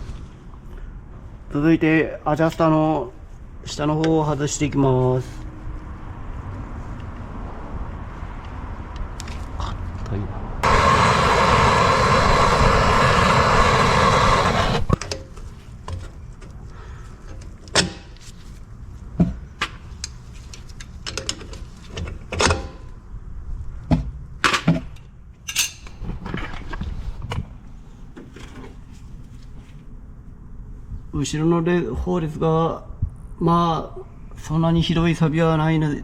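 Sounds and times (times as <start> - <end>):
loud rushing hiss: 10.6 - 15.0.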